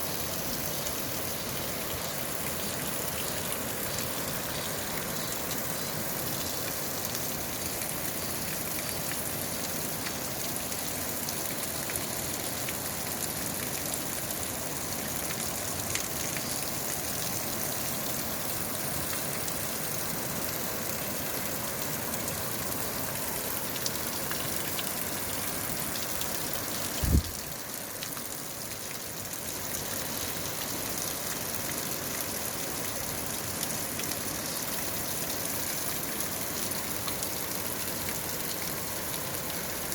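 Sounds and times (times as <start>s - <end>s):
stream rushing: 14.2s - 27.5s.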